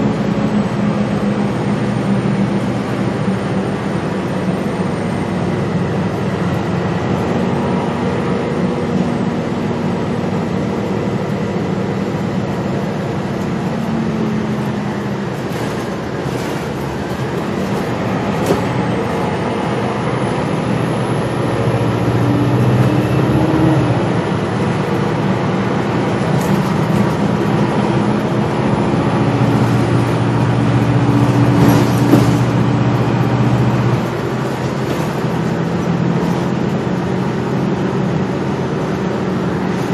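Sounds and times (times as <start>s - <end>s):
bus engine and road noise: 0.0s - 39.9s.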